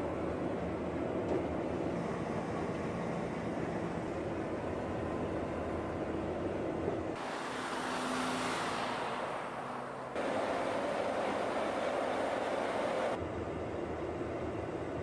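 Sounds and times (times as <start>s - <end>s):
broad hiss: 7.2s - 13.2s.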